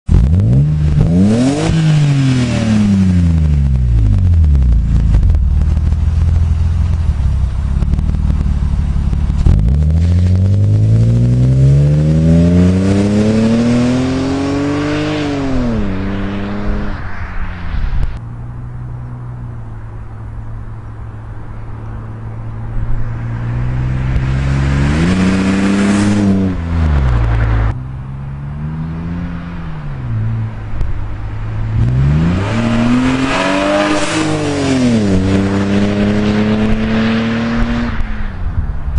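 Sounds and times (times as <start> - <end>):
car engine revving: 0.0 - 38.5
car engine idling: 3.2 - 10.9.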